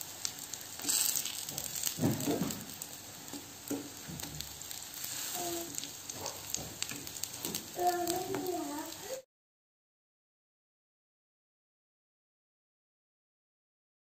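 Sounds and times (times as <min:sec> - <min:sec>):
batter slices sizzling in oil: 0:00.0 - 0:09.3
fork turning food in pan: 0:00.3 - 0:09.1.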